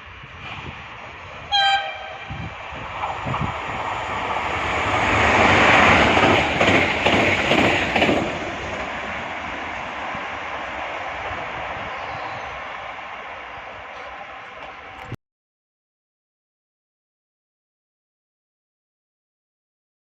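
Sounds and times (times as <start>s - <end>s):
train passing at speed: 0.0s - 15.2s
train horn blast: 1.5s - 2.5s
wheels clattering over rail joints: 4.2s - 10.0s.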